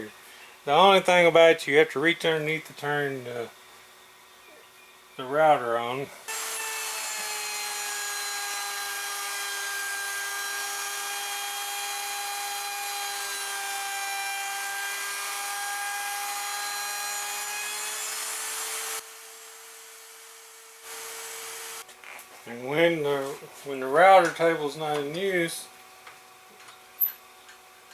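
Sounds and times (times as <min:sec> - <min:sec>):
router motor whining: 0:06.3 - 0:21.9.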